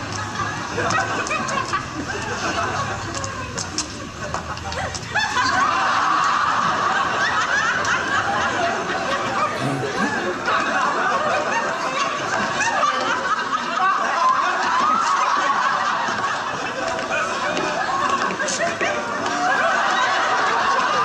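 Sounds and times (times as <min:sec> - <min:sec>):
audience laughing: 0:08.2 - 0:11.4.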